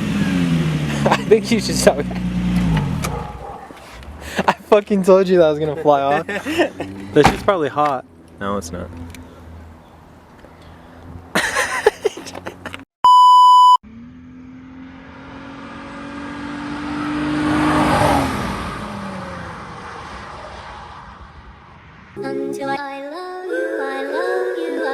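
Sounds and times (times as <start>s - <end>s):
car engine and exhaust passing: 0.0s - 12.8s, 13.8s - 22.2s
short bleep tone: 13.0s - 13.8s.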